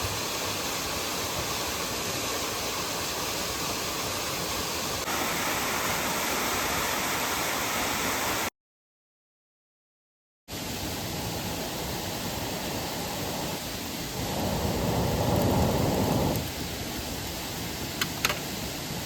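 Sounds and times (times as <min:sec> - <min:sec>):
waterfall and stream rushing: 0:00.0 - 0:08.5, 0:10.5 - 0:19.0.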